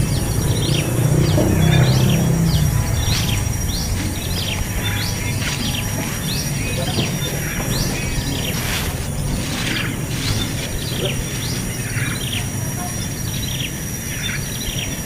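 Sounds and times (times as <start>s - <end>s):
nestling birds chirping: 0.0s - 15.0s
steady low hum: 0.0s - 15.0s.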